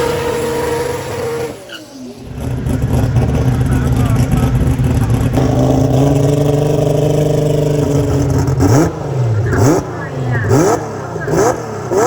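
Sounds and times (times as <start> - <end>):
car engine fast idle and revs: 0.0 - 12.0.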